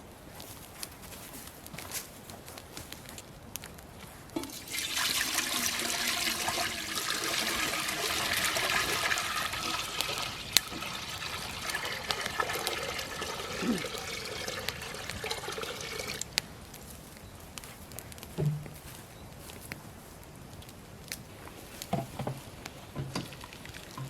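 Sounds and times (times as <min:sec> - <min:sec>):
water pouring into a vessel: 0:04.4 - 0:16.3, 0:23.2 - 0:24.0.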